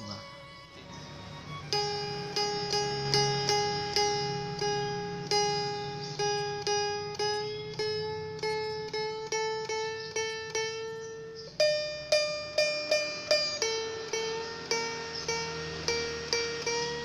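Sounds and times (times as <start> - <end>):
lute string plucked while tuned: 0.0 - 17.0.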